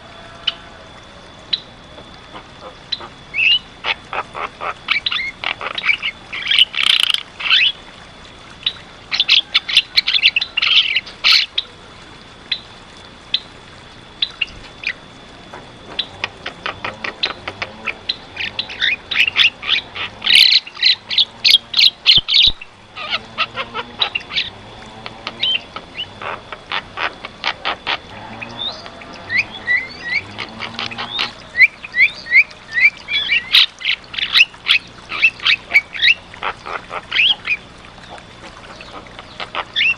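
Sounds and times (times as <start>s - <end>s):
bird chattering and squawking: 2.3s - 7.8s, 16.0s - 24.6s, 25.2s - 37.6s, 38.4s - 39.9s.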